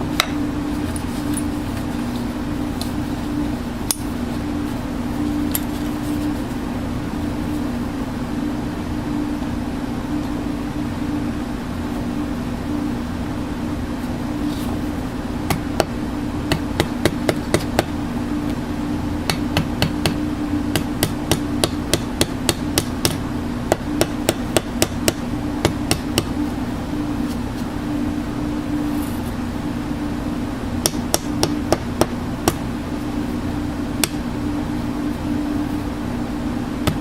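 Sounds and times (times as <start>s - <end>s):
steady low hum: 0.0s - 37.0s
hammer tapping: 0.2s - 0.4s, 15.5s - 17.9s, 19.3s - 26.3s, 30.8s - 32.6s, 34.0s - 34.2s.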